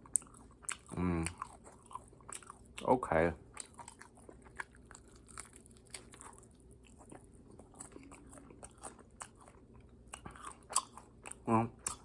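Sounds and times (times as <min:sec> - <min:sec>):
person crunching fried chicken: 0:03.5 - 0:12.0.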